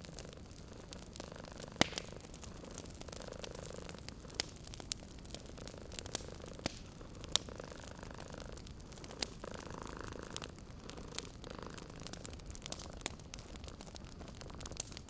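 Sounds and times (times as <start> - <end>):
wood fire crackling: 0.0 - 15.0
cat purring: 0.1 - 14.8.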